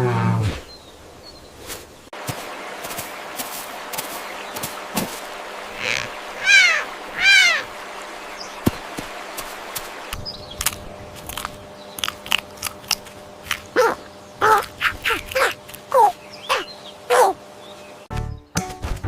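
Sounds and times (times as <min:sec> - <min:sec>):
arched animal calls: 0:05.7 - 0:08.7, 0:13.6 - 0:17.5
short downward sliding calls: 0:05.8 - 0:07.8.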